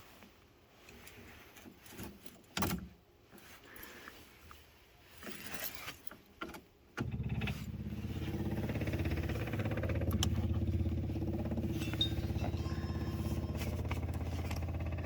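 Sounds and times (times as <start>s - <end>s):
car engine idling: 7.0s - 15.0s.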